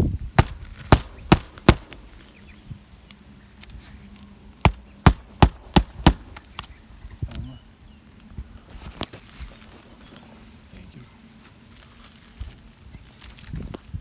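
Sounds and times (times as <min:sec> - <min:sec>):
hammer striking nails: 0:00.4 - 0:02.1, 0:04.7 - 0:06.4.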